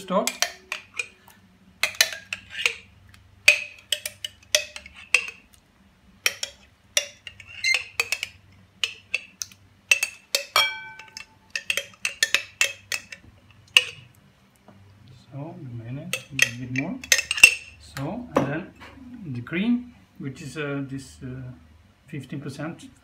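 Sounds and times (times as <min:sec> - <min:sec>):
spoon tapping and scraping a dish: 0:00.2 - 0:05.6, 0:06.2 - 0:14.1, 0:16.1 - 0:17.7.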